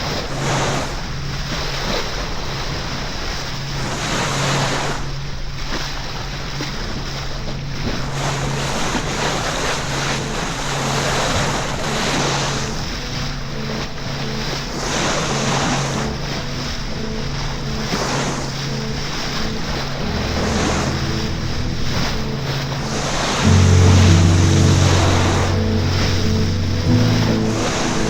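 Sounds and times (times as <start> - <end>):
sea water rushing past boat: 0.0 - 28.0
steady low hum: 12.8 - 28.0.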